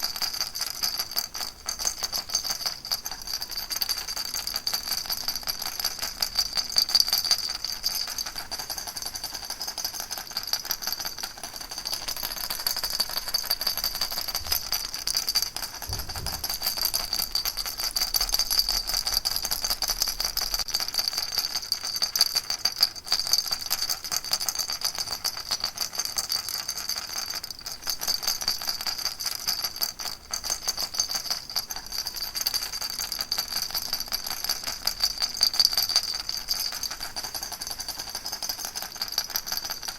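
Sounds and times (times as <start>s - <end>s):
baby rattle shaking: 0.0s - 39.9s.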